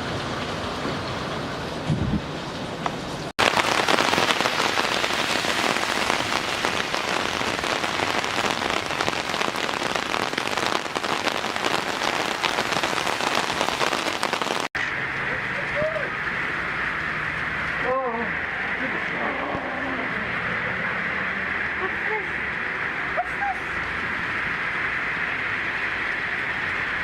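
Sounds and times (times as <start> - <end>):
hail pattering on hard surfaces: 3.4 - 14.7.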